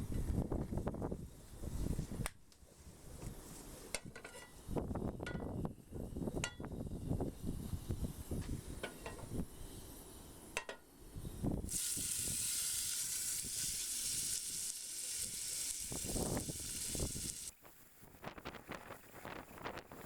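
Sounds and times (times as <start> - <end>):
steak sizzling on iron plate: 11.7 - 17.5.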